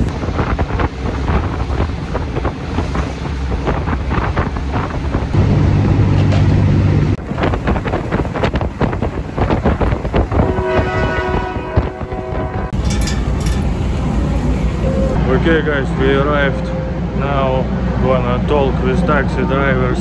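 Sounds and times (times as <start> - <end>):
wind buffeting microphone: 0.0 - 5.6, 7.1 - 15.2
train rumbling and rattling: 0.0 - 20.0
steady low drone: 5.2 - 7.9.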